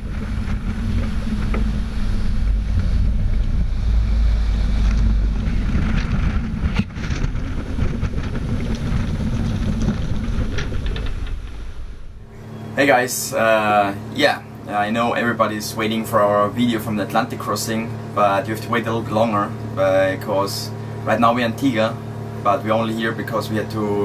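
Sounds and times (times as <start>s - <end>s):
wind buffeting microphone: 0.0s - 12.5s
low rumble: 0.0s - 14.0s.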